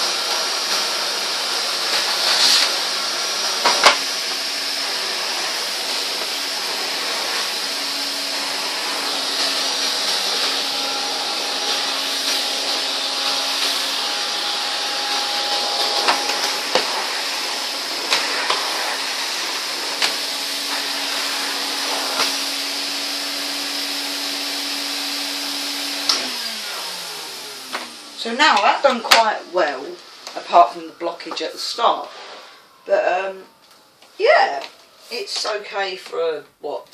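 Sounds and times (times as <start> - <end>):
vacuum cleaner running: 0.0 - 35.9
debris sucked through hose: 1.8 - 22.8.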